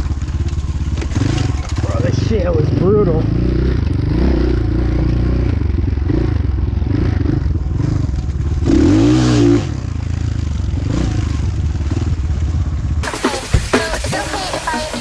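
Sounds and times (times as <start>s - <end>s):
dirt bike engine revving: 0.9s - 8.0s, 8.6s - 12.2s
electronic dance music: 13.0s - 15.0s.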